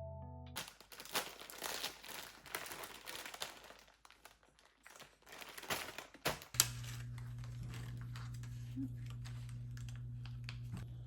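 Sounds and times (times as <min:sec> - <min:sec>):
background music: 0:00.0 - 0:00.6
crinkling and rustling: 0:00.6 - 0:11.0.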